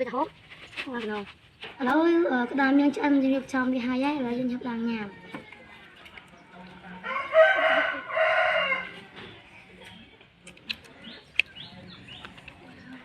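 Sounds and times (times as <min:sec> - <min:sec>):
rooster crowing: 0:07.0 - 0:09.1.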